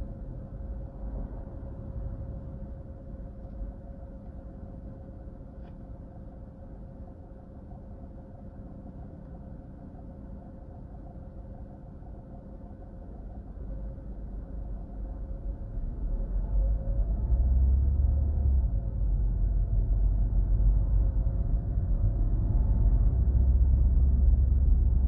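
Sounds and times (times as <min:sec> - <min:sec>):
engine and road rumble: 0:00.0 - 0:06.8, 0:12.8 - 0:25.0
faint constant whine: 0:00.0 - 0:25.0.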